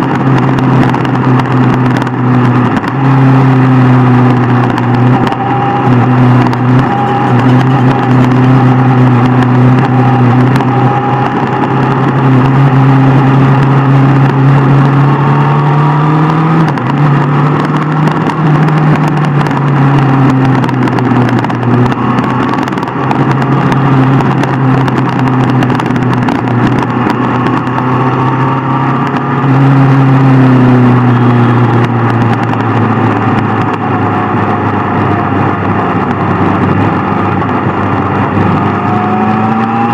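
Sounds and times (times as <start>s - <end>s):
motorcycle engine cruising: 0.0s - 39.9s
road and wind noise: 0.0s - 39.9s.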